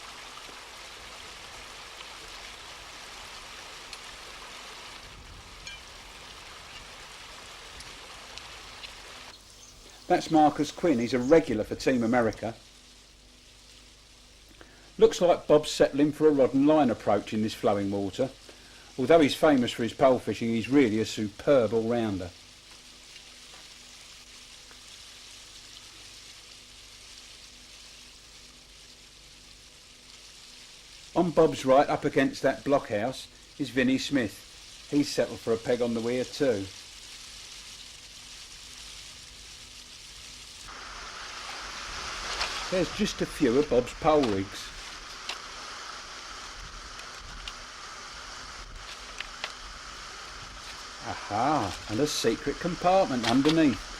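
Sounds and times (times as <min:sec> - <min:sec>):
river water rushing over a weir: 0:40.7 - 0:46.5.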